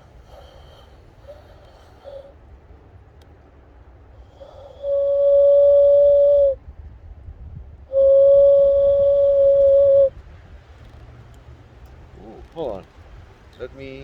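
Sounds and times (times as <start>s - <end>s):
cupped-hand whistle notes: 4.8s - 6.6s, 8.0s - 10.1s.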